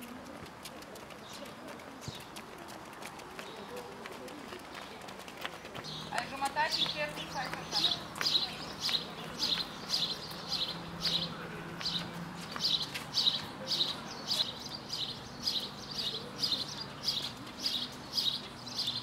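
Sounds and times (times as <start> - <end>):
bird chirping: 5.8 - 19.0.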